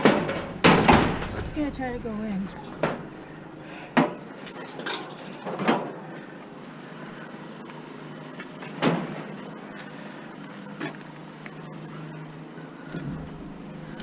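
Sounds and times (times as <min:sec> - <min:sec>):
knocks and clunks: 0:00.0 - 0:03.3.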